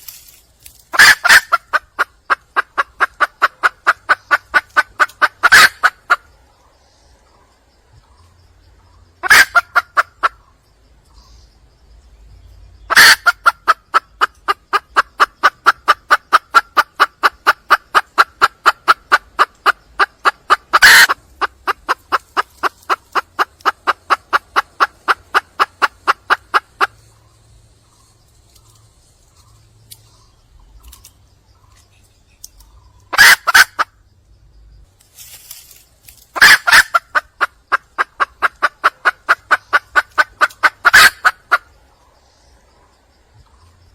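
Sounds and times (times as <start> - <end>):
hen clucking: 0.9 - 6.7, 8.7 - 11.3, 12.8 - 31.9, 32.6 - 34.0, 36.3 - 43.6.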